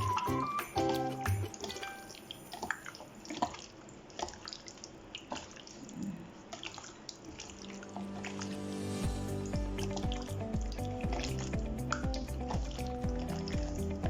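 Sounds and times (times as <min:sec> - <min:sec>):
background music: 0:00.0 - 0:02.2, 0:07.8 - 0:14.0
wet squishing of raw chicken: 0:03.2 - 0:08.0.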